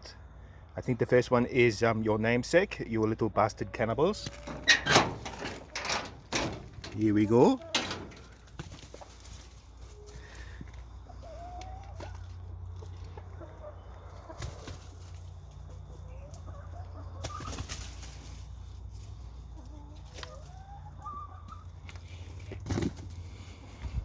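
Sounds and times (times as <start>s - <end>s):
chickens clucking softly: 2.8s - 5.8s, 9.7s - 22.8s
sharp clicks and rustles: 4.3s - 9.4s.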